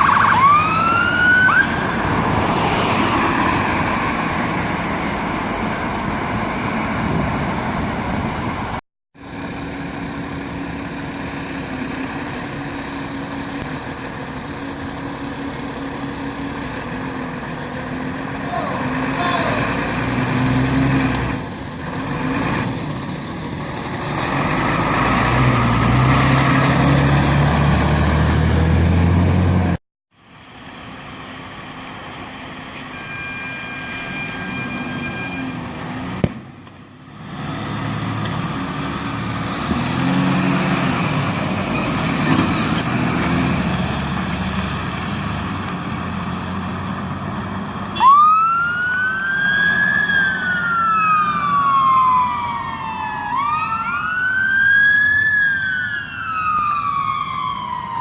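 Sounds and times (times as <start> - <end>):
siren wailing: 0.0 - 2.5, 31.2 - 35.9, 48.0 - 58.0
diesel engines revving: 0.0 - 58.0.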